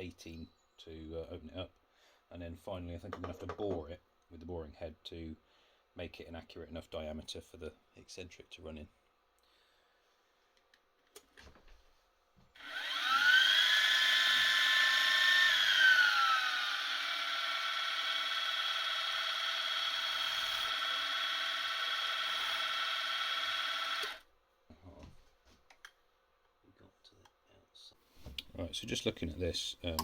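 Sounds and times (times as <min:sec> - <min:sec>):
milling machine spindle whine: 0:12.6 - 0:24.2.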